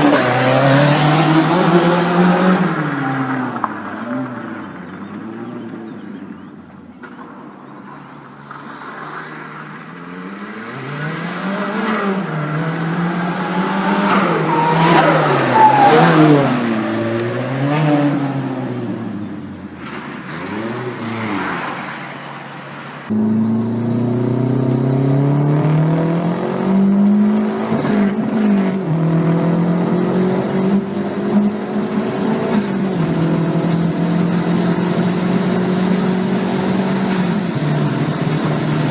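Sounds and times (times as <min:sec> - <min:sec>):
car engine revving through gears: 0:00.0 - 0:03.3, 0:10.0 - 0:19.0, 0:23.1 - 0:38.9.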